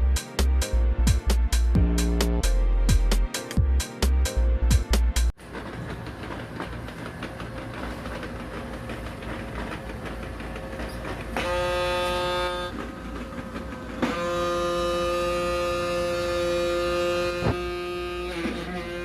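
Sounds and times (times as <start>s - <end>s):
horn-like tone: 11.4s - 12.8s, 14.0s - 19.0s.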